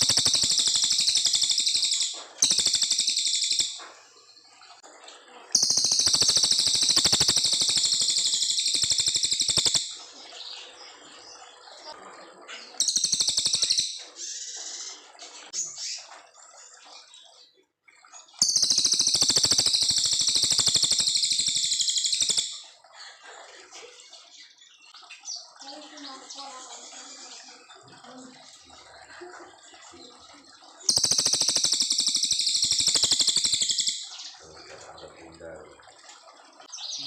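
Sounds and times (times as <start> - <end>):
songbird high-pitched trills: 0.0 - 4.6, 5.5 - 11.9, 12.5 - 16.1, 18.2 - 22.8, 30.2 - 35.4.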